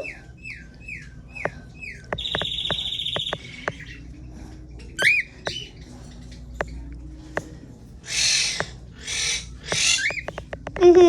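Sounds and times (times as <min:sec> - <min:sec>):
cockatiel chirping: 0:08.1 - 0:10.6.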